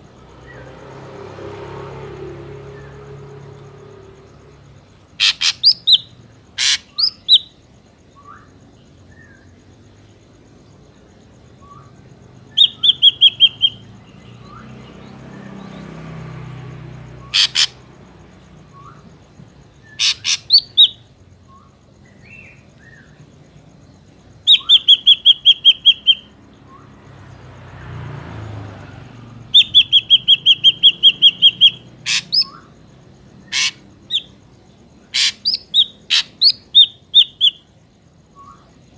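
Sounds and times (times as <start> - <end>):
bird calls with repeated notes: 2.7 - 9.6, 11.5 - 16.0, 17.1 - 17.8, 18.4 - 27.0, 29.4 - 38.9.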